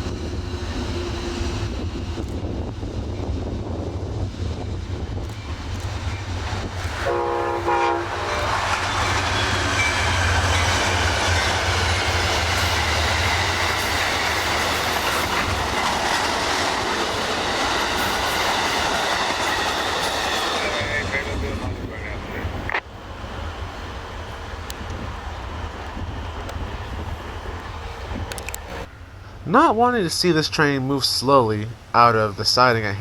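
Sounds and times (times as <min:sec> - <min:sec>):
train wheels clattering on rails: 0:00.0 - 0:28.9
train horn blast: 0:07.0 - 0:09.7.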